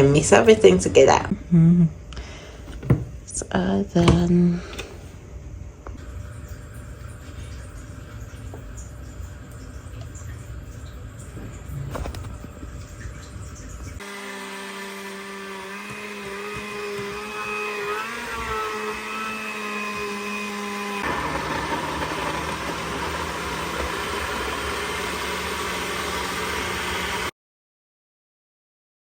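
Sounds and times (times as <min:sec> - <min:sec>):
blender motor running: 0:14.0 - 0:27.3.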